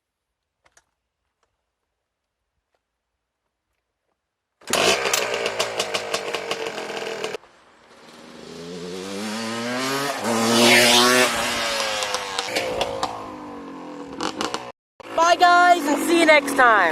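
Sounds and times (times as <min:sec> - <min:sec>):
two-stroke atv engine revving: 0:04.6 - 0:07.4, 0:08.0 - 0:16.9.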